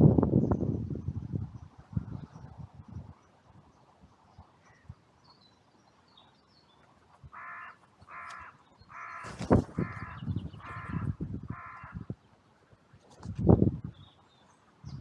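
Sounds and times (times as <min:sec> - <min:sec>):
crow cawing: 0:07.3 - 0:12.1.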